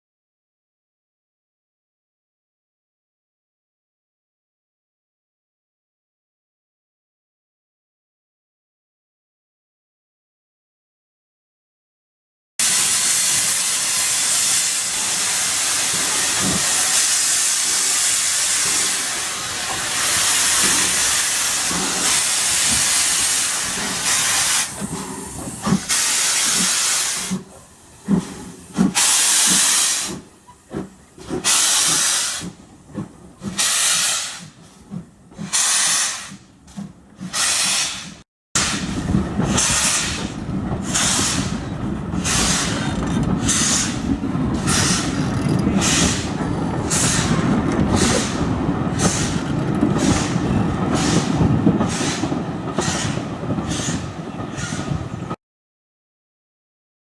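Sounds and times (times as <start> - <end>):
steam engine hissing: 12.6 - 55.3.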